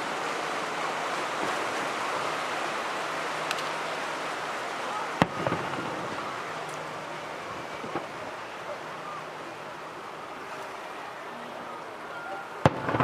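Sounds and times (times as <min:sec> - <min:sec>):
surf rushing: 0:00.0 - 0:13.0
firework crackles: 0:05.2 - 0:09.5, 0:12.6 - 0:13.0
firework bang: 0:12.6 - 0:13.0.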